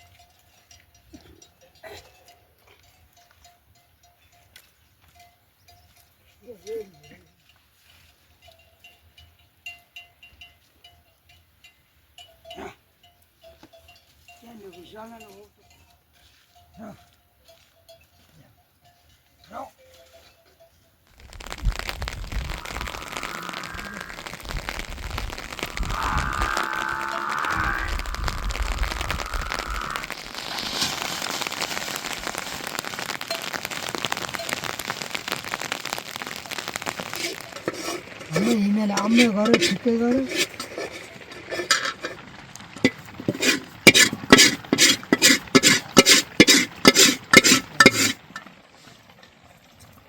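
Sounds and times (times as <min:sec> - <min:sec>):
livestock bells clinking: 0:00.0 - 0:21.2, 0:33.0 - 0:34.9
steady rain patter: 0:21.1 - 0:50.0
sheep bleating: 0:22.6 - 0:24.3, 0:25.6 - 0:30.1.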